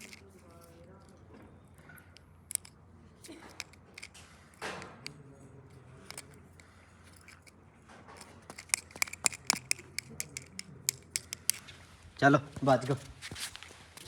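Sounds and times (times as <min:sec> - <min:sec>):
handling clicks: 0:00.0 - 0:01.2, 0:02.1 - 0:05.2, 0:06.0 - 0:07.6, 0:08.2 - 0:11.7.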